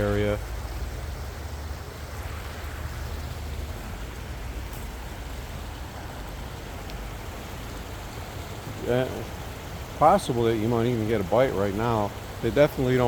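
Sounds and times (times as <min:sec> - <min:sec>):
shallow stream rushing: 0:00.0 - 0:13.0
low rumble: 0:01.5 - 0:06.8.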